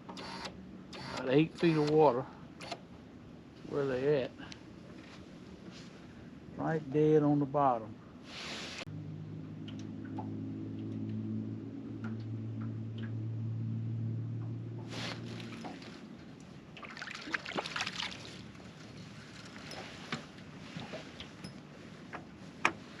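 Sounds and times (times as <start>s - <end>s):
boat motor humming: 8.9s - 16.8s
small clicks and taps: 9.6s - 11.2s
water lapping and slapping: 14.9s - 19.8s.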